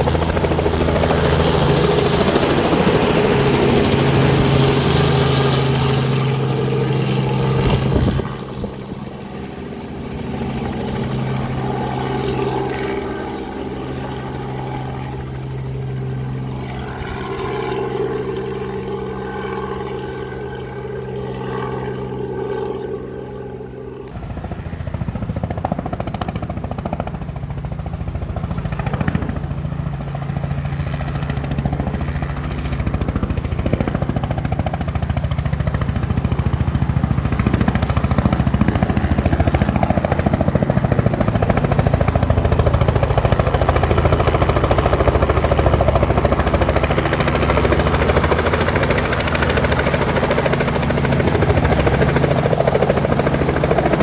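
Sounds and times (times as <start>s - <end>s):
helicopter running: 0.0s - 54.0s.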